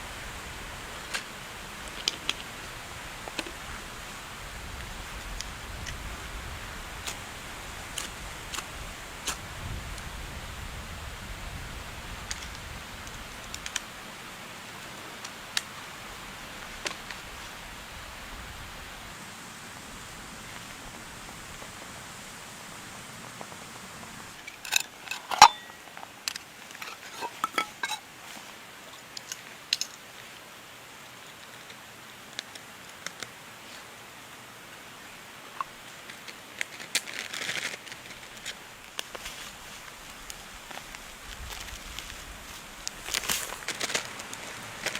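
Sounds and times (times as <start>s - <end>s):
steady rain: 0.0s - 44.9s
metal clinks and knocks: 24.4s - 25.9s, 26.7s - 28.0s.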